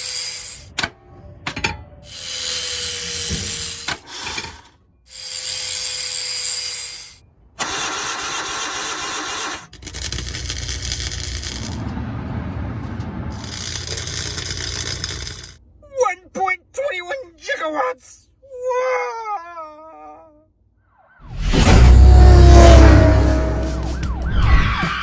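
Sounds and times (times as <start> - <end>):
car engine starter cranking: 7.6 - 11.9, 13.0 - 15.6
low engine rumble: 10.0 - 15.8, 21.3 - 25.0.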